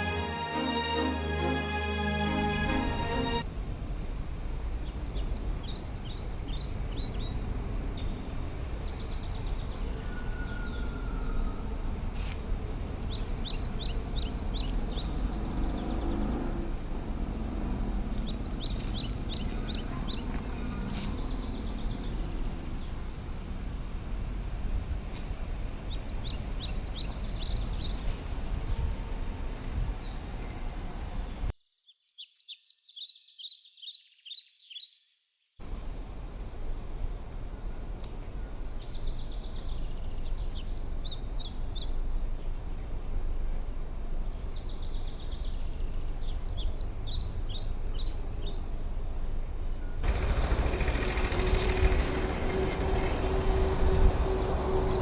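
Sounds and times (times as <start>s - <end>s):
low background rumble: 48.8s - 55.0s.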